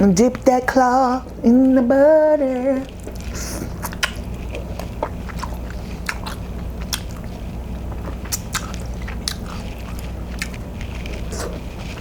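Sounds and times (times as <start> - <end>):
wet mouth clicks and chewing: 2.9 - 7.3, 8.0 - 11.6.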